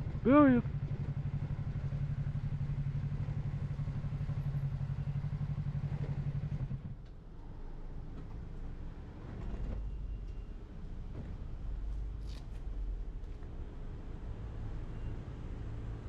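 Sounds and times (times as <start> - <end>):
motorcycle engine idling: 0.0 - 6.4.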